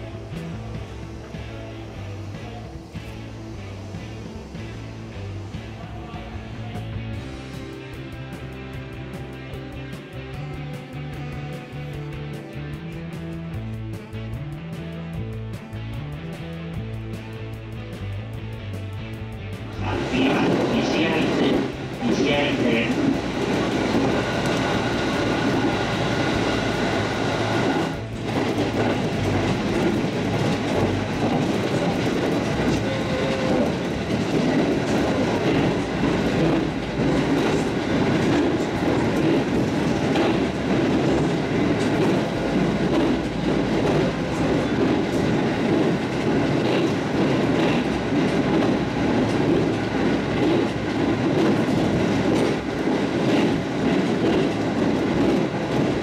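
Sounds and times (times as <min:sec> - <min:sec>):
train rumbling: 0:00.0 - 0:13.8, 0:16.2 - 0:56.0
wheels clicking over rail joints: 0:19.8 - 0:56.0.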